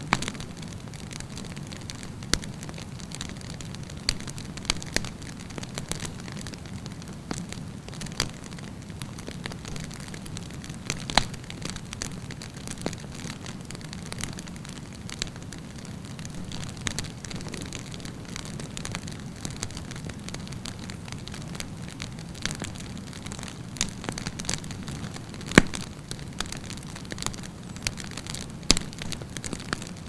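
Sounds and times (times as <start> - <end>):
burning wood crackling and popping: 0.0 - 30.0
campfire flames rumbling: 0.0 - 30.0.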